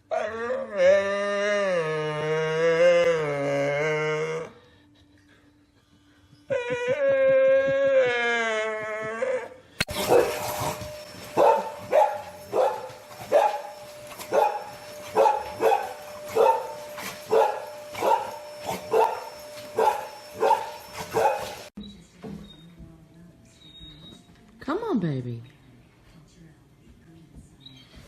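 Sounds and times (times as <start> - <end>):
dog barking: 9.9 - 10.6, 11.3 - 21.7.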